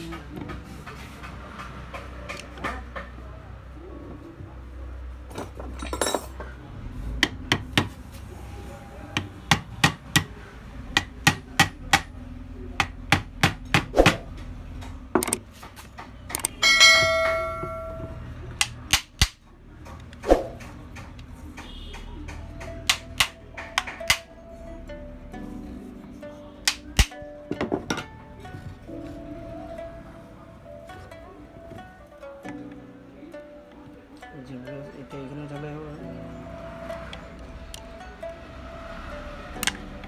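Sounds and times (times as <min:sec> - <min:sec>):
hammer taps on metal: 0:07.2 - 0:08.0, 0:09.2 - 0:10.4, 0:11.0 - 0:12.1, 0:12.8 - 0:17.8, 0:18.6 - 0:24.3, 0:26.6 - 0:27.2
ringing hammer strike: 0:16.6 - 0:19.3.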